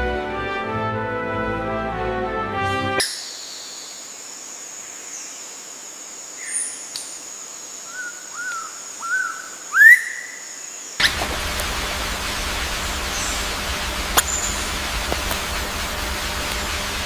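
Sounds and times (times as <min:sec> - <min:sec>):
music: 0:00.0 - 0:03.0
bird calling: 0:07.8 - 0:17.0.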